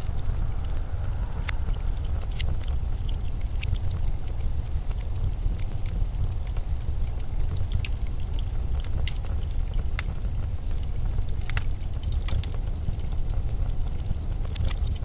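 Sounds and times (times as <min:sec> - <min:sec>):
wind blowing: 0:00.0 - 0:09.4
sharp crackles and ticks: 0:00.0 - 0:15.0.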